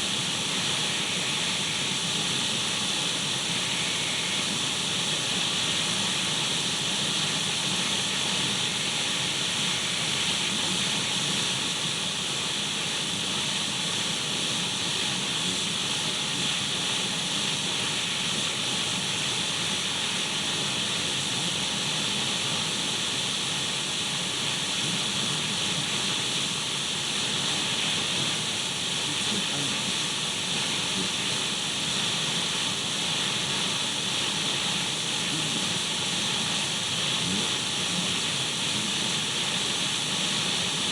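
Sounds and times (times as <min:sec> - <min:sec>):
radio static hiss: 0:00.0 - 0:06.4, 0:07.0 - 0:22.6, 0:24.2 - 0:40.9.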